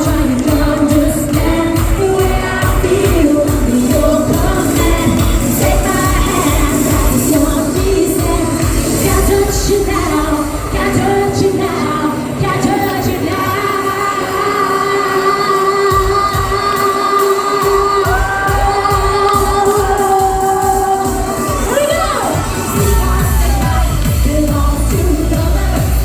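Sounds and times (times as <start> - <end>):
synths and thumping beat: 0.0 - 13.2.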